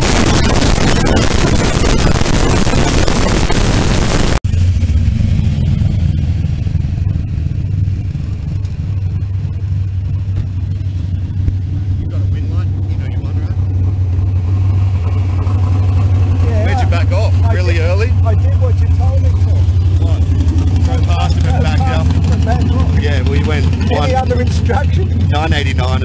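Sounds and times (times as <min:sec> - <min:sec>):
wind noise on microphone: 0:00.0 - 0:04.4
dragster engine running: 0:00.0 - 0:26.0.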